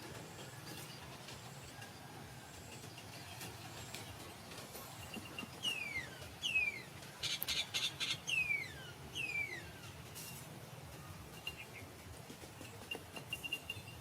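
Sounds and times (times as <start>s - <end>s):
bird whistling downward: 7.8s - 9.7s.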